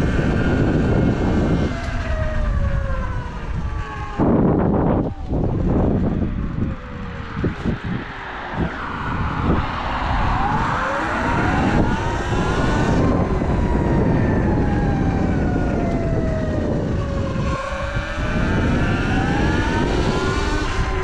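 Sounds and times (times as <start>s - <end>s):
rush of noise: 0.0s - 21.0s
electric motor whining: 8.6s - 21.0s.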